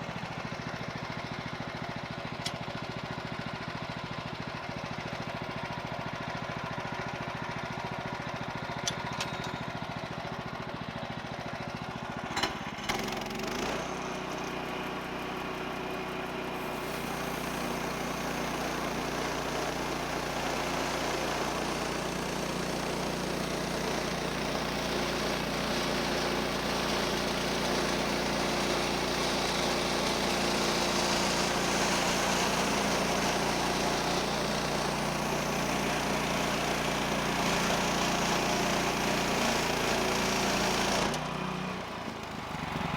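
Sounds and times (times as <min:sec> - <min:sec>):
engine idling and revving: 0:11.9 - 0:16.6, 0:36.9 - 0:42.9
band saw blade cutting log: 0:12.4 - 0:14.0, 0:16.6 - 0:42.0.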